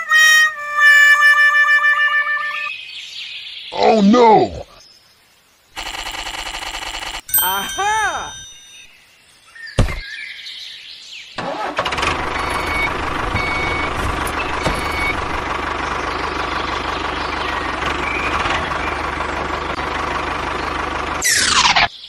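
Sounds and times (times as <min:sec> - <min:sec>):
tractor engine starting and running: 0:11.4 - 0:21.9.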